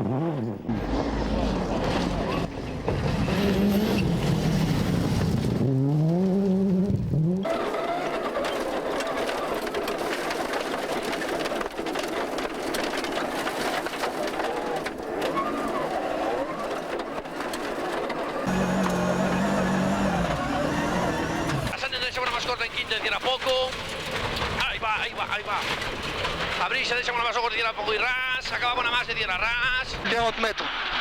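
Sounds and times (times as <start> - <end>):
rally car engine driven hard: 0.0 - 23.0.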